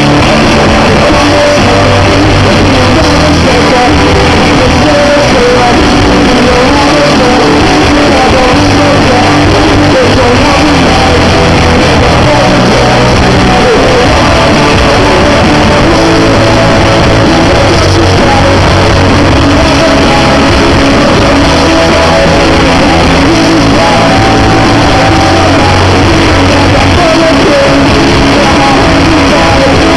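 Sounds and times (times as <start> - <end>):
lead vocal singing: 0.0 - 29.9
live rock band playing: 0.0 - 29.9.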